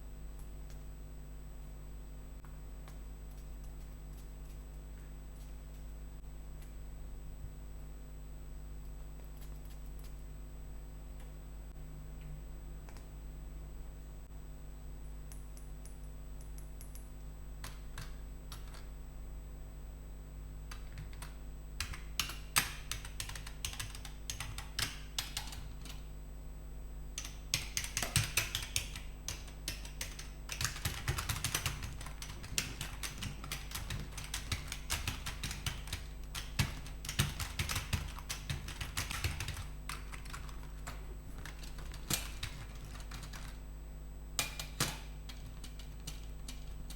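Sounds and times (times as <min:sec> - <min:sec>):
steady low hum: 0:00.0 - 0:46.9
keyboard keys clicking: 0:20.7 - 0:26.0, 0:27.2 - 0:43.6, 0:44.4 - 0:46.9.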